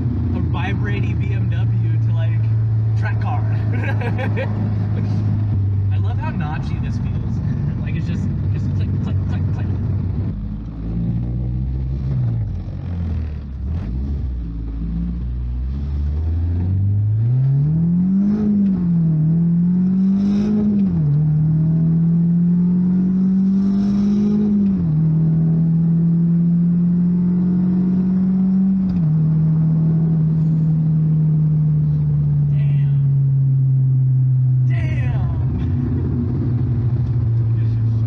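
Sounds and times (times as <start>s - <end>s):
car engine accelerating through gears: 7.0s - 34.7s, 35.4s - 38.0s.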